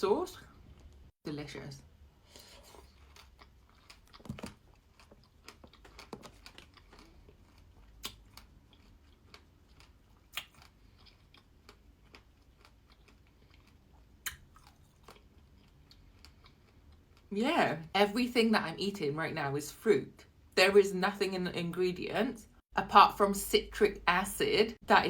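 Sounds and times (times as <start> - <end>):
close-miked chewing: 2.4 - 17.3.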